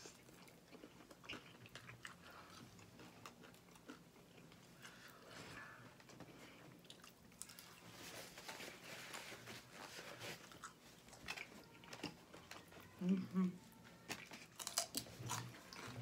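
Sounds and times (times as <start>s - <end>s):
chewing chicken wings: 0.0s - 5.2s, 14.0s - 16.0s.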